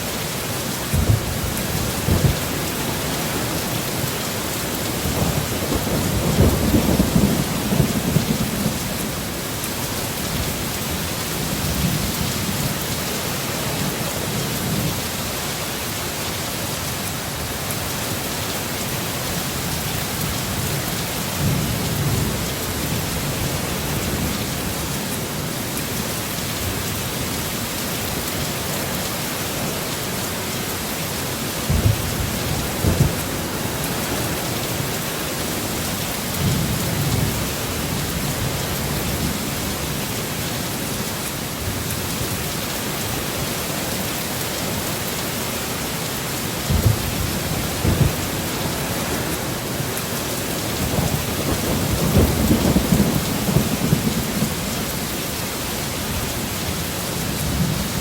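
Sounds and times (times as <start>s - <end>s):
heavy rain hissing: 0.0s - 58.0s
thunder rolling: 31.6s - 35.7s, 46.7s - 54.7s.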